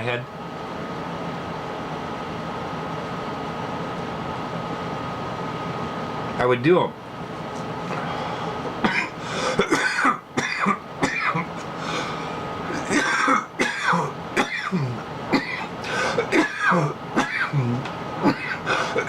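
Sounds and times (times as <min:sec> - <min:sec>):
man coughing: 0:08.8 - 0:11.6, 0:12.7 - 0:19.0.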